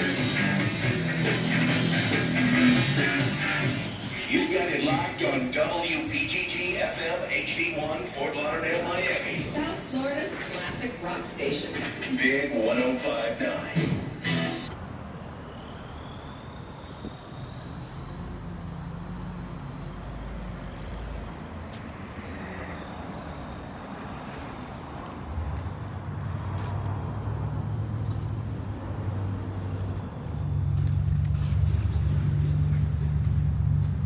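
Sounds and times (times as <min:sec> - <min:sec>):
diesel truck engine running: 0:00.0 - 0:09.9, 0:28.2 - 0:34.0.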